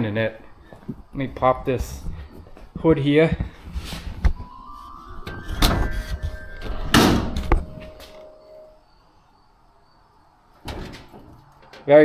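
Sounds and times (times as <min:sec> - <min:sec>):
metallic ringing: 0:04.4 - 0:08.8
metal hood scraping open: 0:05.3 - 0:08.0.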